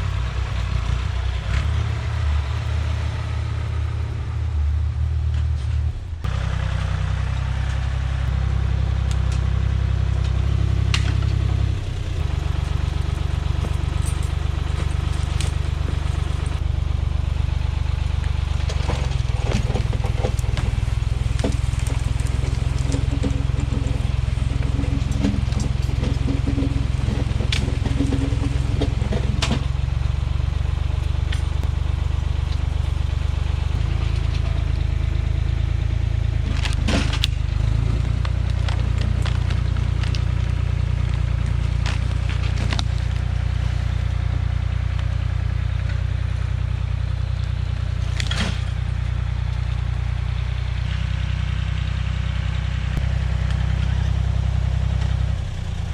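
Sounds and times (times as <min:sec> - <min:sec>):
tractor engine running: 0:00.0 - 0:55.9
crackles and knocks: 0:09.0 - 0:16.8, 0:18.1 - 0:45.2.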